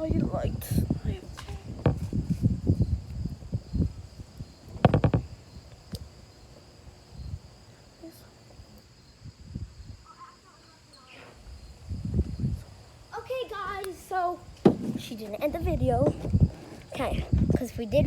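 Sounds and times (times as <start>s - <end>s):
handling clatter and knocks: 1.3s - 2.6s, 4.7s - 6.1s, 14.6s - 17.6s
soft thumps: 1.3s - 3.2s, 4.6s - 6.7s, 14.5s - 17.6s.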